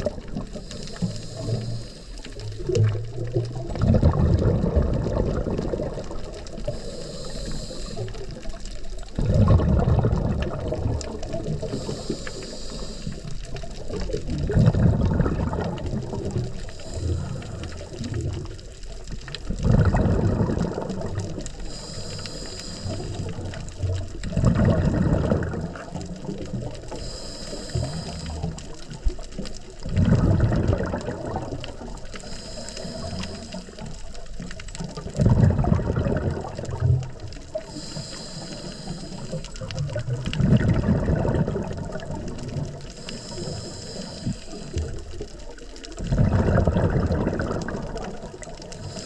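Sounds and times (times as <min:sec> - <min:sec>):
exhaled bubbles gurgling: 0:00.0 - 0:49.0
diver inhaling through regulator: 0:00.4 - 0:02.8, 0:04.4 - 0:08.5, 0:09.5 - 0:13.5, 0:14.7 - 0:18.2, 0:19.8 - 0:23.7, 0:26.8 - 0:28.8, 0:30.0 - 0:34.3, 0:35.2 - 0:45.2, 0:48.7 - 0:49.0.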